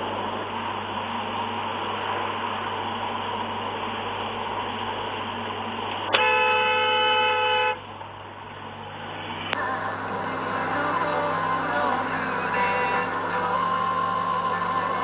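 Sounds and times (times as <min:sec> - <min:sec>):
car horn: 0:06.2 - 0:07.8
road noise: 0:09.6 - 0:15.0.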